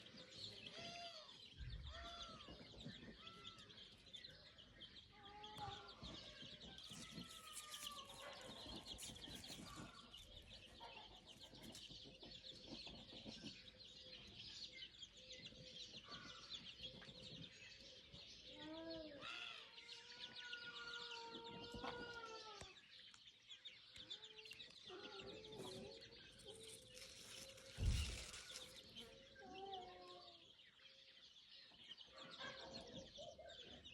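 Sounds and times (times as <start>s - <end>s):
sharp thump: 27.7s - 28.5s.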